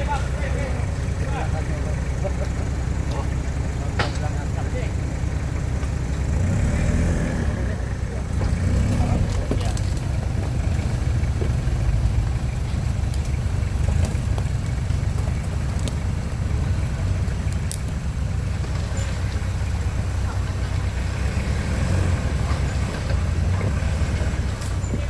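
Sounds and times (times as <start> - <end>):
vehicle engine running: 0.0 - 25.0
sharp clicks and knocks: 3.9 - 4.4.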